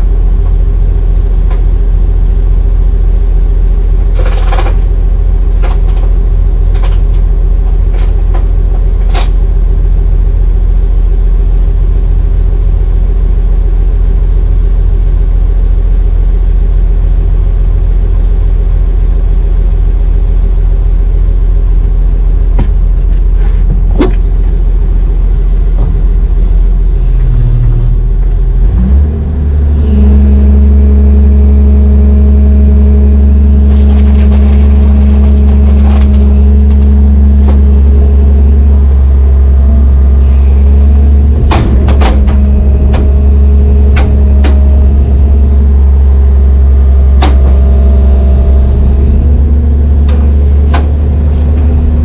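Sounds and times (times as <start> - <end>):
diesel engine droning: 0.0 - 52.0
sharp engine knocks: 22.5 - 24.6, 33.5 - 52.0.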